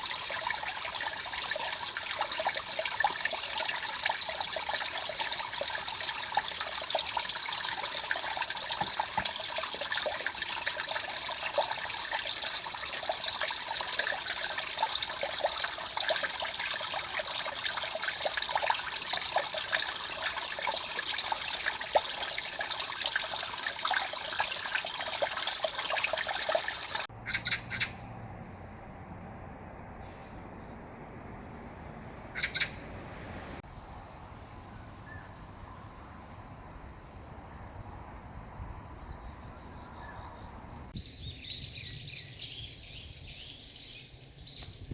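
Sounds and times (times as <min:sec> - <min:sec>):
mountain stream babbling: 0:00.0 - 0:27.1.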